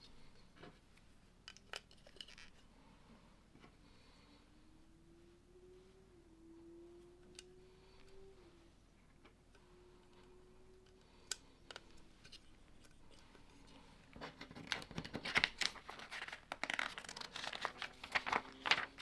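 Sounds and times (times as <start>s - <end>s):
plastic bag crinkling and rustling: 12.8s - 19.0s.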